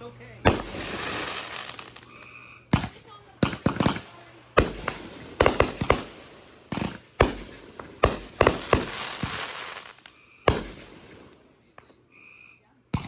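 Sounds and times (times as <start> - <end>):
fireworks crackling hiss: 0.5 - 11.5
fireworks bangs: 0.5 - 12.0.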